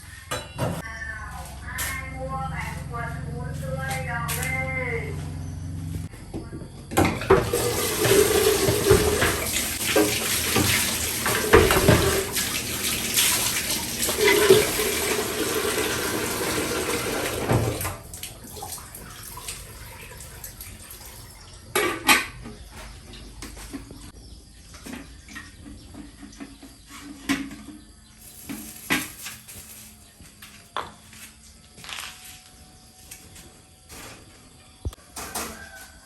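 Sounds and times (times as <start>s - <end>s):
water running and splashing: 7.3s - 21.4s.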